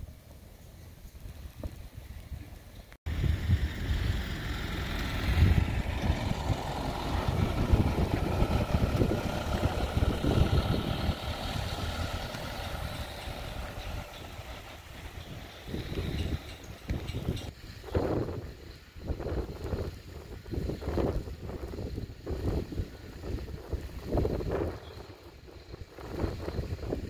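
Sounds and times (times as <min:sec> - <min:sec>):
wind gusting on microphone: 0:01.0 - 0:27.0
vehicle engine running: 0:02.8 - 0:17.6.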